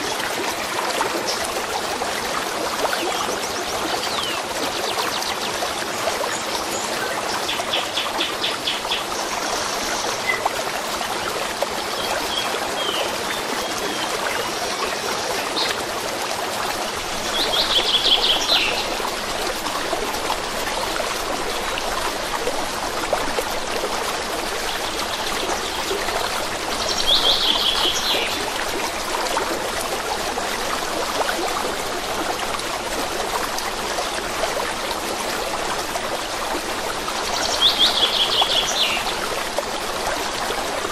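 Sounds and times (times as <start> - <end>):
stream running: 0.0 - 40.9
songbirds singing: 17.2 - 19.0, 37.3 - 39.2.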